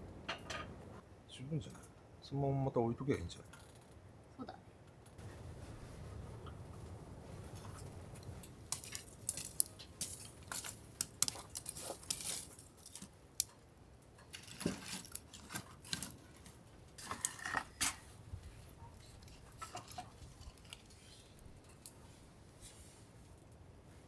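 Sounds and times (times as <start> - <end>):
metal utensils and dishes clinking: 7.6 - 13.1, 14.2 - 22.0.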